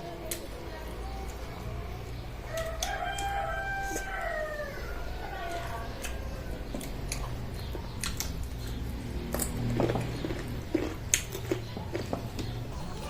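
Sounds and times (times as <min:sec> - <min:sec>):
rooster crowing: 0:02.5 - 0:06.5
person chewing with wet mouth clicks: 0:06.8 - 0:08.8.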